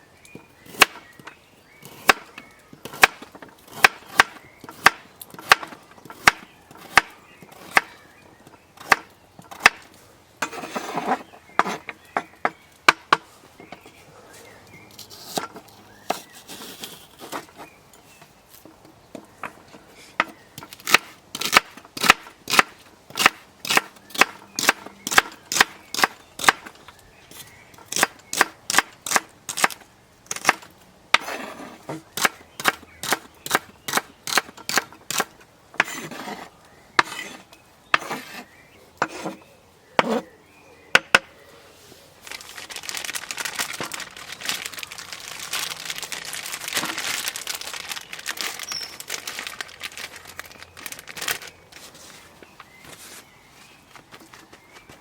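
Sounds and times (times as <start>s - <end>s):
crinkling rustle: 9.8s - 21.9s, 41.6s - 55.0s.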